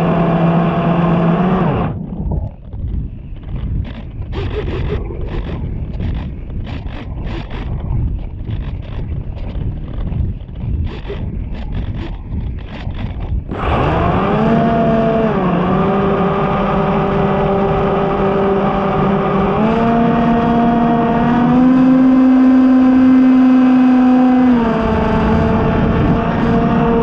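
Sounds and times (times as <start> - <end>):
model plane motor whining: 0.0 - 2.0, 11.8 - 27.0
wind on microphone: 0.0 - 27.0.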